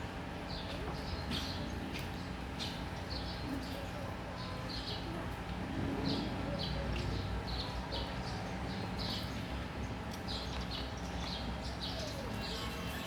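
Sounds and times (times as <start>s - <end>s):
small bird chirping: 11.9s - 13.0s.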